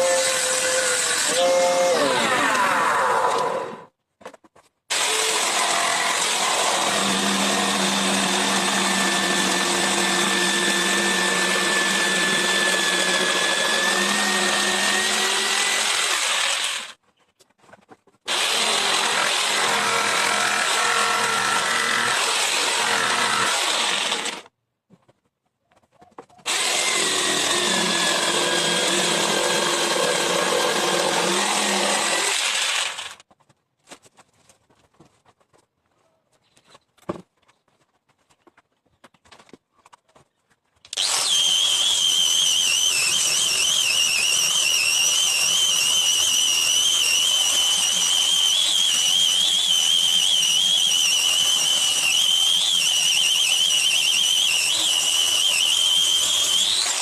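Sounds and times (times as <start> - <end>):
power tool cutting wood: 0.0 - 3.8, 4.9 - 17.0, 18.3 - 24.5, 26.5 - 33.2, 40.9 - 57.0.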